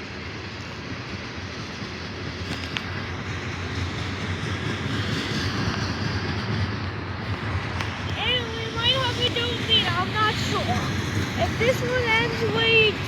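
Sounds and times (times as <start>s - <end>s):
freight train rumbling on rails: 0.0s - 13.0s.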